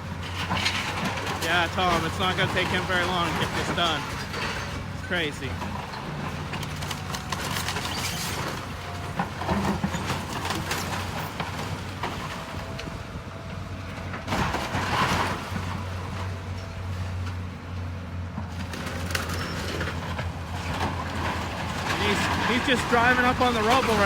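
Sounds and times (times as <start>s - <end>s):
demolition machine engine: 0.0s - 24.0s
debris crashing: 0.2s - 13.0s, 14.2s - 16.5s, 18.5s - 24.0s
crunching through structure: 18.5s - 24.0s.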